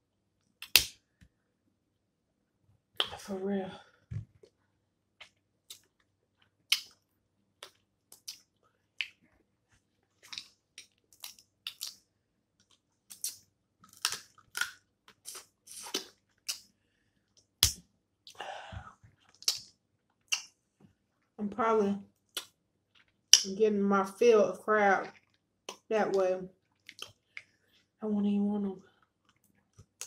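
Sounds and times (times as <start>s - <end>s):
crab shell cracking: 13.1s - 14.8s
chewing: 25.1s - 25.8s, 26.6s - 27.9s.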